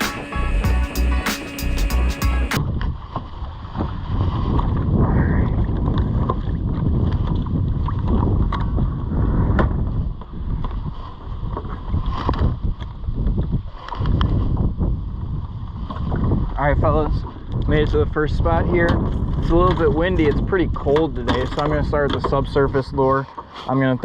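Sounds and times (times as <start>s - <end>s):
boat motor underway: 0.0s - 3.3s
wind buffeting microphone: 2.6s - 23.2s.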